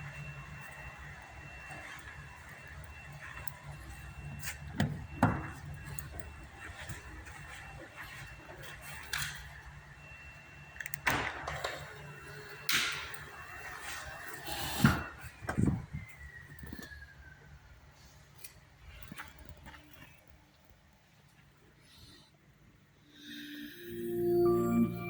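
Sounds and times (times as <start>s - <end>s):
knocks and clunks: 4.7s - 5.6s.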